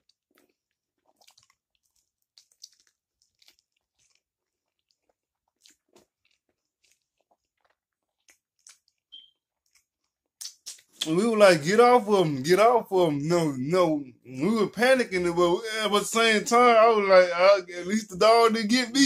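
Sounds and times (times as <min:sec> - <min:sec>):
person chewing: 0:00.0 - 0:11.2.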